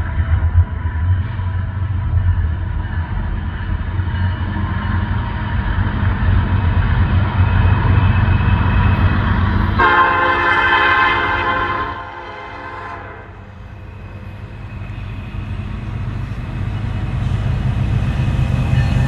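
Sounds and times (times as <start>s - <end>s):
freight train rumbling: 0.0s - 19.0s
locomotive air horn: 9.7s - 13.5s.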